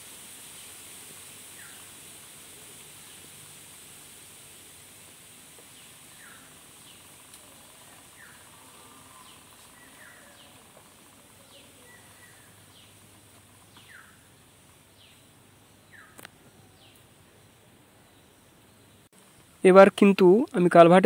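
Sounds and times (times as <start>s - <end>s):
faint background hiss: 0.0s - 21.0s
small bird chirping: 5.6s - 17.1s.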